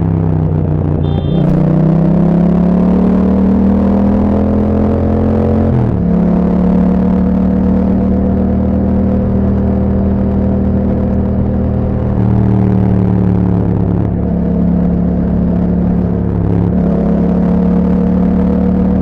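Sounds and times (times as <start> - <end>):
motorcycle engine running: 0.0 - 1.9.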